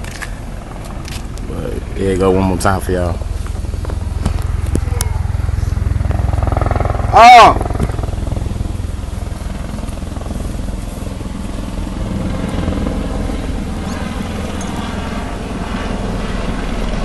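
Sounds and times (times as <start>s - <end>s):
helicopter rotor chopping: 0.0s - 17.0s.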